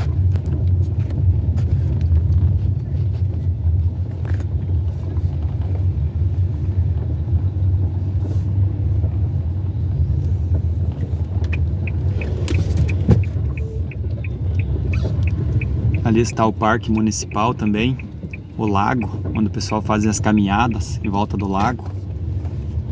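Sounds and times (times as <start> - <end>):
car engine and road noise: 0.0 - 22.9
quick even ticking: 11.4 - 21.4.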